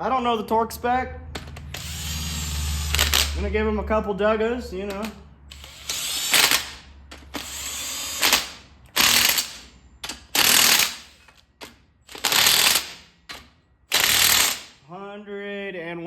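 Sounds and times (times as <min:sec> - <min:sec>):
impact wrench bursts: 0:01.4 - 0:03.5, 0:04.9 - 0:11.3, 0:12.1 - 0:14.8.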